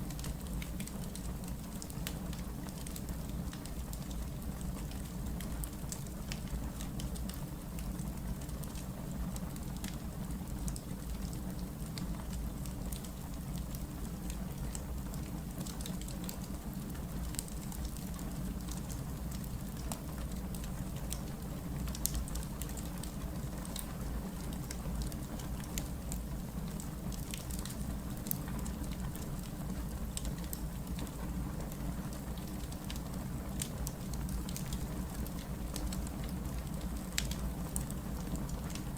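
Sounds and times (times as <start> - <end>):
wood fire burning: 0.0 - 38.9
crackles and pops from logs: 33.6 - 37.9.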